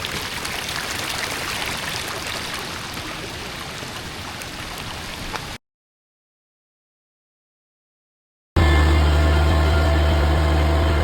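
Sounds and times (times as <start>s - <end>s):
heavy rain: 0.0s - 5.6s
rushing storm runoff: 0.0s - 5.6s.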